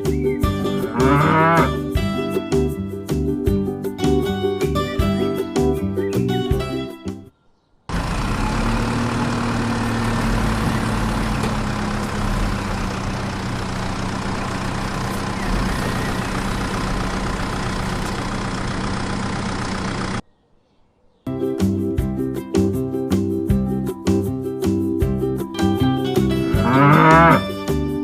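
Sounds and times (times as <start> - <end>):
guitar music: 0.0 - 7.3, 21.3 - 28.0
tractor engine idling: 7.9 - 20.2.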